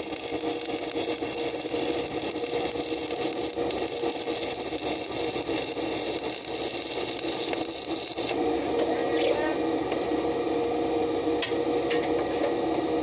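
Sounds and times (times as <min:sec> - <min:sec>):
welding arc crackling: 0:00.0 - 0:08.6
welding machine hum: 0:00.0 - 0:13.0.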